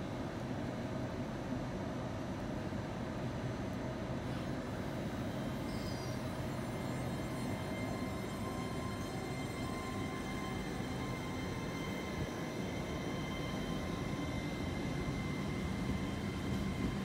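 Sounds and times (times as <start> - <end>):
train rumble: 0.0 - 17.0
faint high whine: 4.2 - 17.0.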